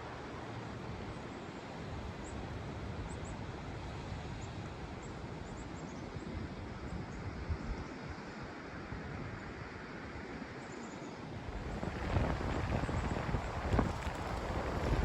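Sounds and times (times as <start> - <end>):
strong wind: 1.8 - 10.3, 11.3 - 15.0
wind buffeting microphone: 11.4 - 15.0.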